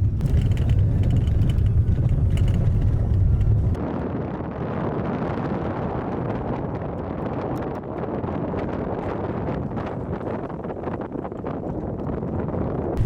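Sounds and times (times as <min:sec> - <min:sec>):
car rumbling over gravel: 0:00.0 - 0:03.8
knocks and rattles: 0:00.0 - 0:03.8.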